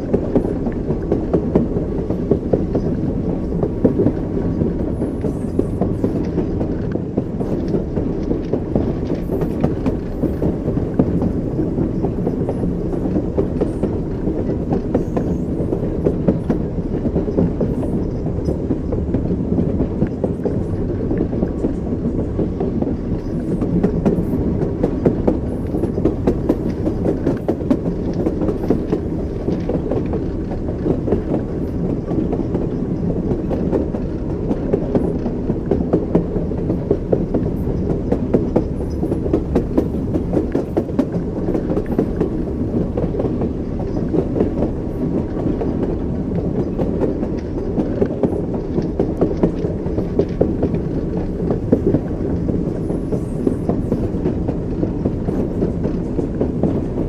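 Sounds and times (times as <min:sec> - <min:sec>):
train wheels clickety-clack on rails: 0:00.0 - 0:57.0.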